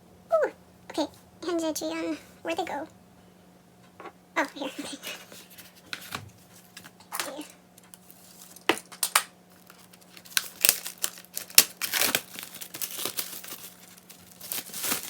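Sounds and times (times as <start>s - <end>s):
plastic sleeves crinkling: 9.5s - 15.0s.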